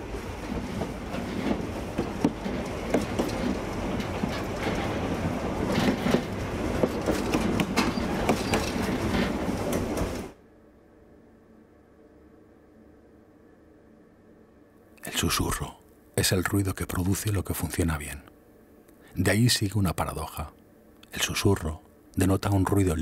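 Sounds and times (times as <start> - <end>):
train rumbling on rails: 0.0 - 10.4
wheel-on-track clicks: 1.1 - 10.3.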